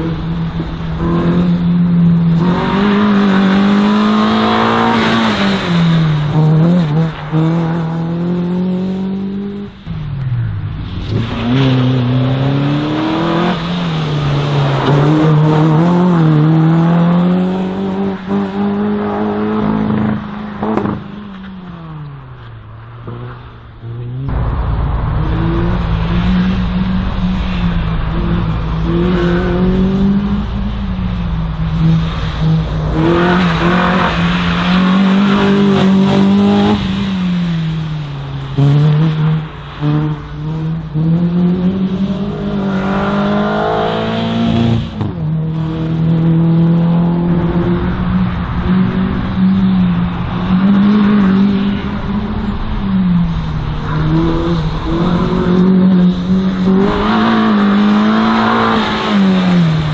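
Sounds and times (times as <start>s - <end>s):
race car engine revving: 0.0s - 10.0s, 22.3s - 59.9s.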